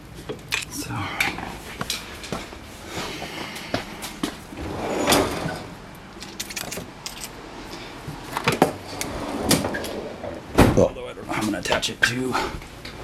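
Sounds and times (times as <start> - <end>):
metal tools clinking: 6.2 - 7.4.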